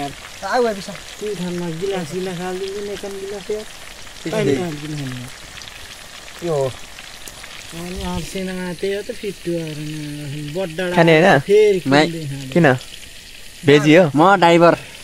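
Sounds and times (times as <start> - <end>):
people talking: 0.0 - 5.3, 6.4 - 6.8, 7.7 - 12.8, 13.6 - 14.9
food frying sizzle: 0.0 - 15.0.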